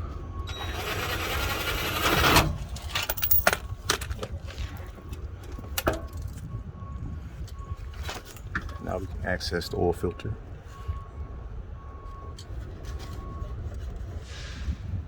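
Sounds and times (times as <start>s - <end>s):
metal shield scraping: 0.6s - 3.6s.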